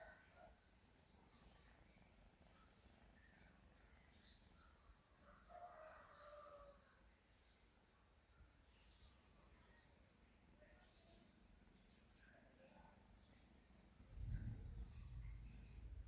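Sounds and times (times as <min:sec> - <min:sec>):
faint bird chirps: 0:00.0 - 0:16.0.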